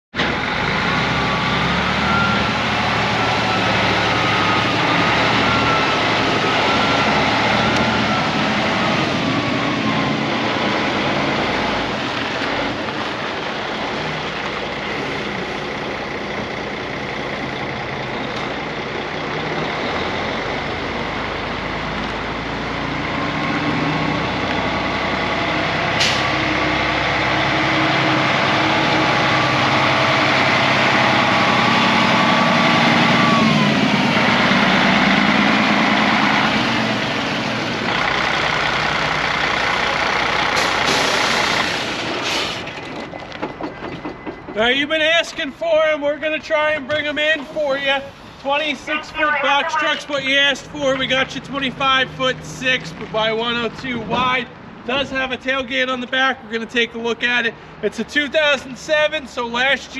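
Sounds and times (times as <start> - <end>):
diesel truck engine rumble: 0.1 - 59.9.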